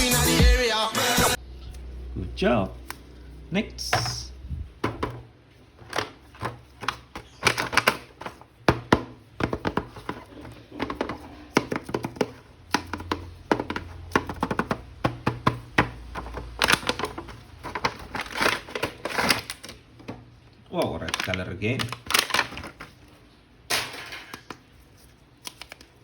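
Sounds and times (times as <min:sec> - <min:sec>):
handling plastic toy and packaging: 0:02.8 - 0:26.0.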